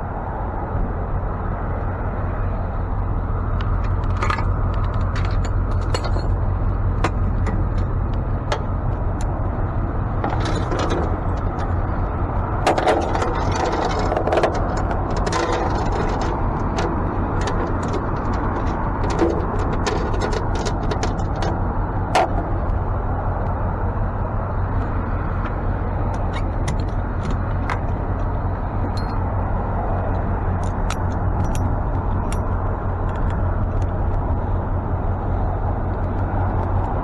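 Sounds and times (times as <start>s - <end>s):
tow truck engine rumbling: 0.0s - 37.0s
metallic jangling and clicking: 3.6s - 9.4s, 10.0s - 22.7s, 25.4s - 29.4s, 30.6s - 33.3s.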